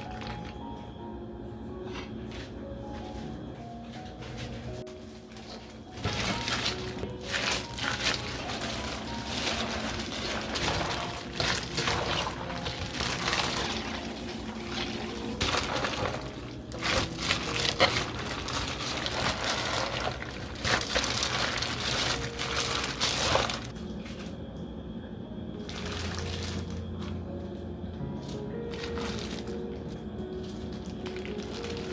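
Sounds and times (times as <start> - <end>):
soft background music: 0.0 - 31.9
liquid pouring and splashing: 6.0 - 23.7.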